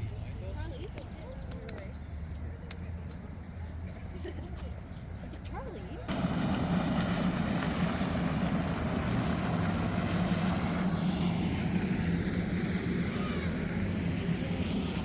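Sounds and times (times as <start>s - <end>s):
low engine drone: 6.1s - 15.0s.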